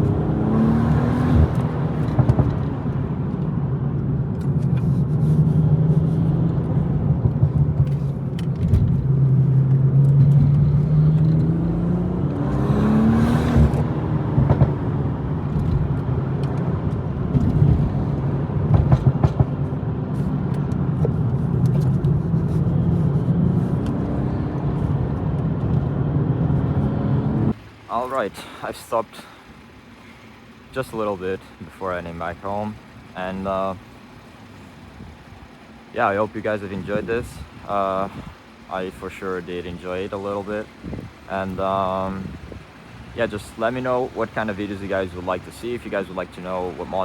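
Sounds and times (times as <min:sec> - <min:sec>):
car engine running: 0:00.0 - 0:27.5.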